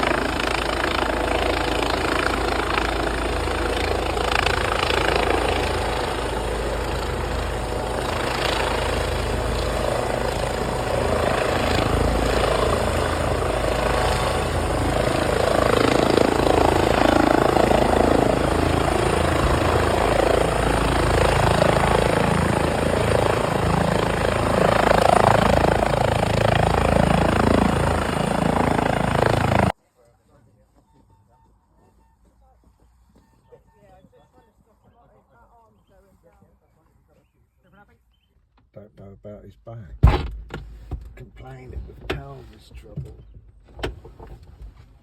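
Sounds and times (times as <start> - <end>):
helicopter running: 0.0 - 29.8.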